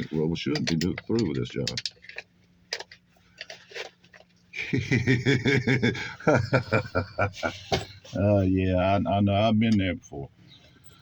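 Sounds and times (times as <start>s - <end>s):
man chuckling or muttering: 4.6s - 8.2s.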